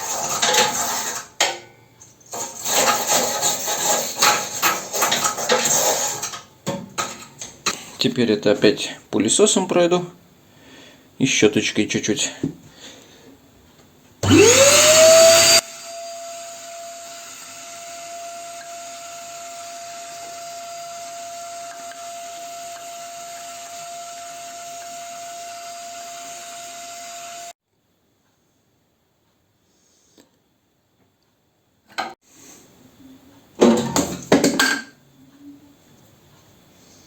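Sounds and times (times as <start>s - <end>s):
vacuum cleaner motor whining: 14.2s - 27.5s.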